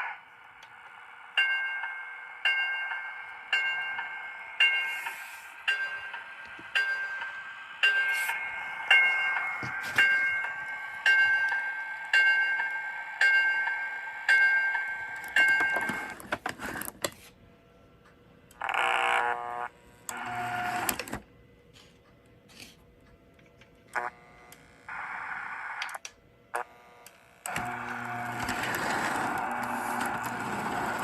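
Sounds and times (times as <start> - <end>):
electronic train sound effects: 0.0 - 16.3, 27.6 - 31.0
steady train running sound: 0.0 - 16.9, 27.5 - 31.0.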